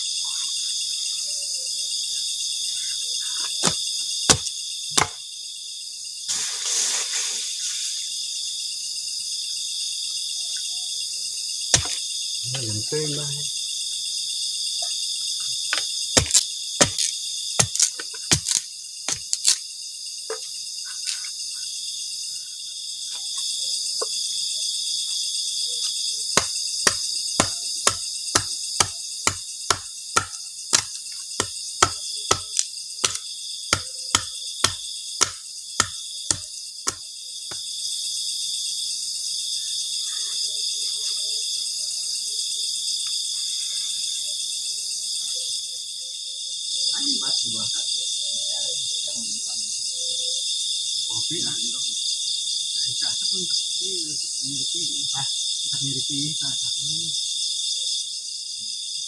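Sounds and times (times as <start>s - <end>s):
crickets and insects chirping: 0.0s - 59.0s
sharp knocks: 3.6s - 5.2s, 11.8s - 12.0s, 26.4s - 37.0s.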